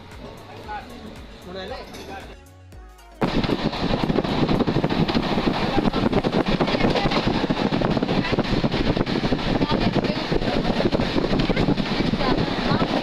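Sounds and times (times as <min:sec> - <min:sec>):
train wheels rumbling on track: 0:03.2 - 0:13.0
wind buffeting microphone: 0:03.2 - 0:13.0.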